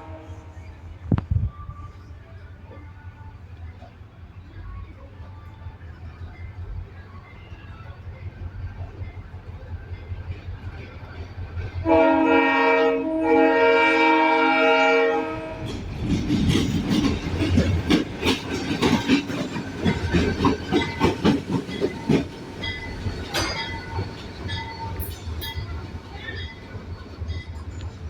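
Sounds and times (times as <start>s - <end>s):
locomotive air horn blasts: 0.0s - 0.6s, 11.8s - 15.7s
wheels clacking over rail joints: 15.5s - 28.0s.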